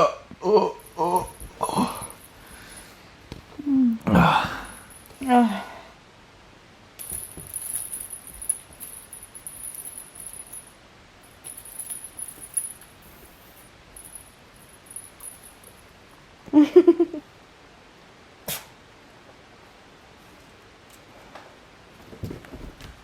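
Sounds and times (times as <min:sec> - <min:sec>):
light jingling and rustling: 0:00.8 - 0:03.0, 0:04.7 - 0:05.3, 0:07.0 - 0:16.1.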